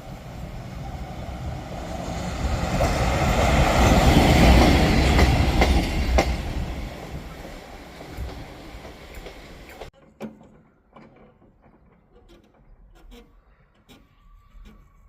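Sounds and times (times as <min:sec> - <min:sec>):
train rumbling past: 0:00.0 - 0:09.9
wheels clicking over rail joints: 0:01.7 - 0:14.8.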